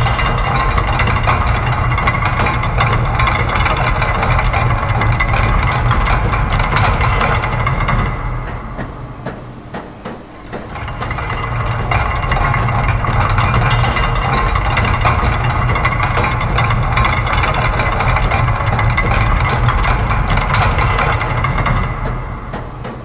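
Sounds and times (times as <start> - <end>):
low machine hum: 0.0 - 23.0
machine clicking and clattering: 0.0 - 23.0.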